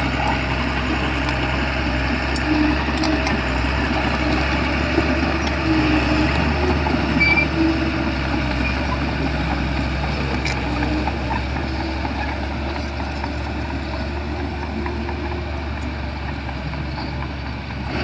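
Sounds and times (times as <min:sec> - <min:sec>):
bulldozer diesel engine running: 0:00.0 - 0:18.0
machine squeaks: 0:04.2 - 0:09.1.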